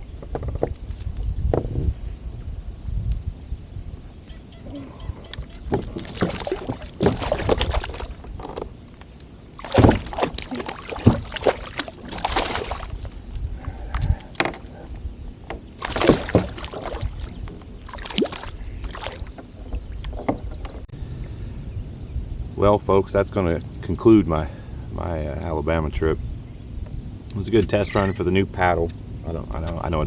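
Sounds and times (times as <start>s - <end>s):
kayak paddle splashing: 5.8s - 8.7s, 9.6s - 13.2s, 15.8s - 19.5s.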